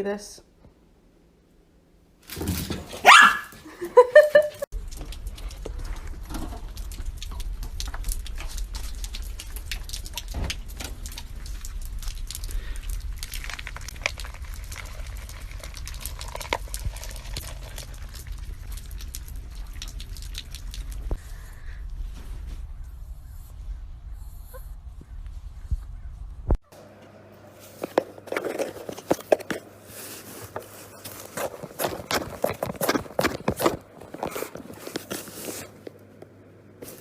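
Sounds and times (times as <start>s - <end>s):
dog barking and yipping: 2.9s - 3.7s
steady low rumble: 4.7s - 26.6s.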